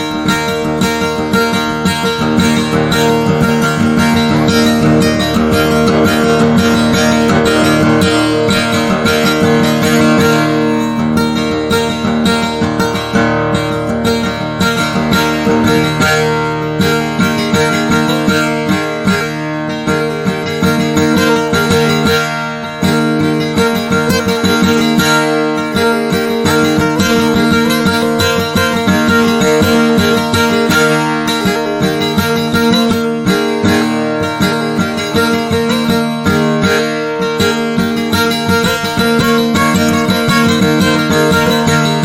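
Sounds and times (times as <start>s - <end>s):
acoustic guitar plucking: 0.0s - 42.0s.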